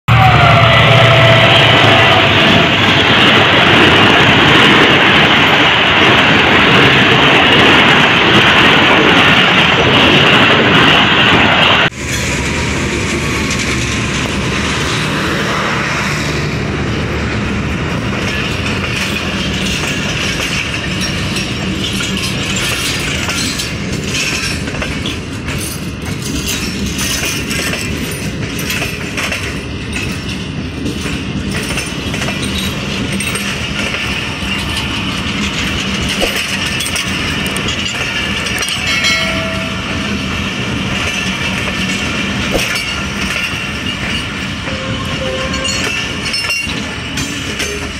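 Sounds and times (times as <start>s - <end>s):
harsh rushing noise: 0.1s - 24.1s
train wheels rumbling and rattling: 0.1s - 47.9s.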